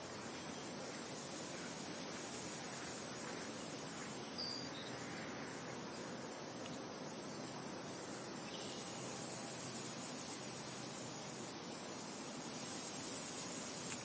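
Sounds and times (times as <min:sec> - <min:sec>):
high chirp: 0:04.4 - 0:05.0.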